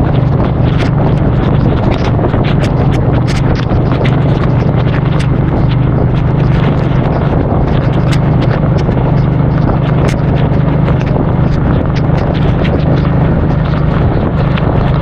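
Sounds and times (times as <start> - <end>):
motorcycle engine running: 0.0 - 15.0
raindrops hitting microphone: 0.0 - 15.0
wind on microphone: 0.0 - 15.0.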